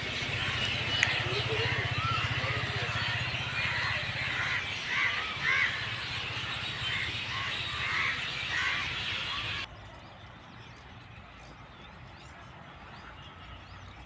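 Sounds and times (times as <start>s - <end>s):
flock of birds cawing: 0.0s - 9.7s
steady low hum: 0.0s - 9.7s.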